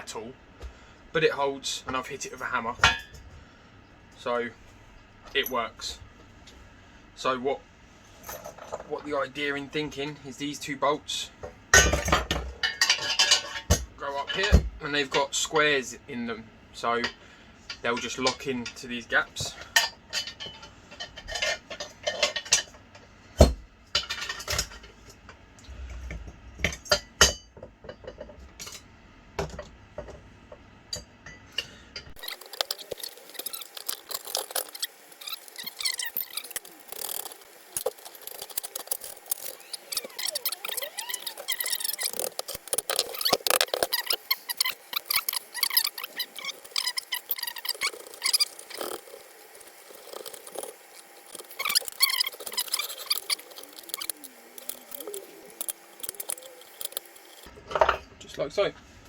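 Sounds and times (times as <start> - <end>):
quick squeaky chirps and ticks: 32.2 - 57.4.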